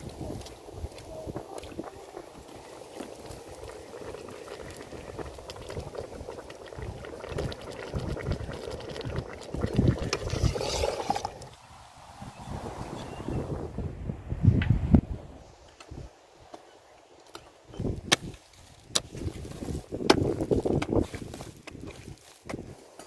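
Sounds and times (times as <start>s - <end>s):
pot bubbling at the boil: 0.0s - 11.6s, 17.8s - 22.7s.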